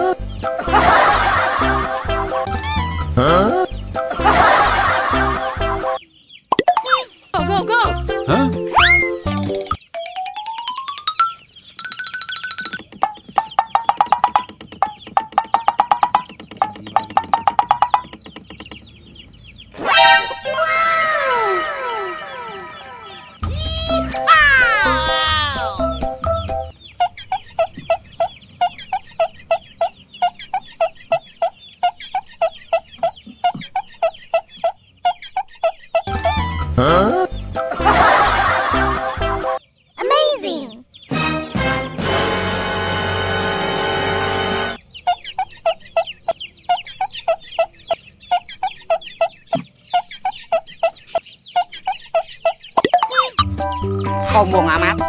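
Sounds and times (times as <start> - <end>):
music: 0.0 - 6.0, 7.4 - 9.8, 22.8 - 26.7, 36.1 - 39.6, 41.1 - 44.8, 53.4 - 55.0
chicken clucking: 12.8 - 20.4, 21.6 - 23.4, 26.7 - 37.4, 44.8 - 53.9.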